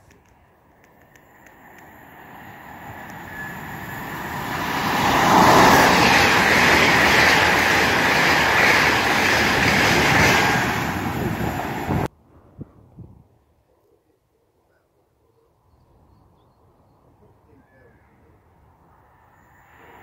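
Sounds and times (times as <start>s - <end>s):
express train passing: 0.9s - 12.1s.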